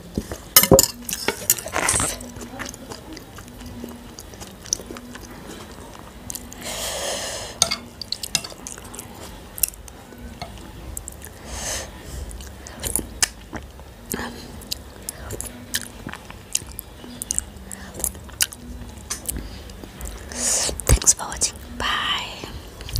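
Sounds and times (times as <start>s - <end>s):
chewing and mouth noises: 0.0s - 6.8s, 7.5s - 11.4s, 12.0s - 21.8s
metal spoon clicking on plates: 7.6s - 8.8s.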